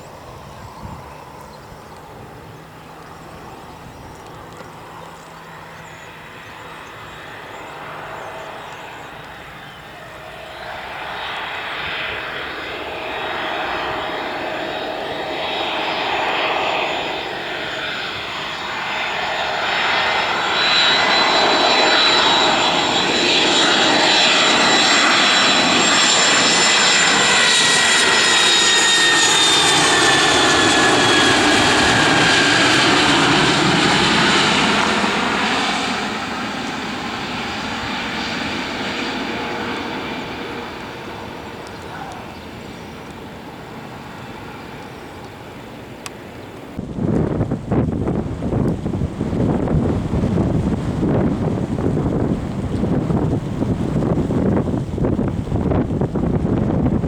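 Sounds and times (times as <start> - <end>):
aircraft engines passing: 0.0 - 57.0.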